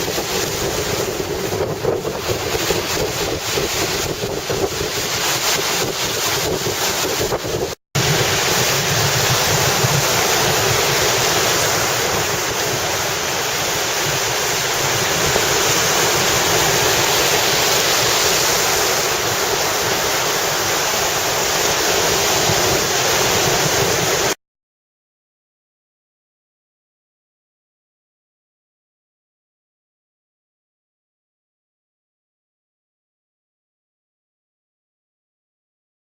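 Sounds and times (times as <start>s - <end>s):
surf: 0.0s - 24.4s
wind on microphone: 0.0s - 24.4s.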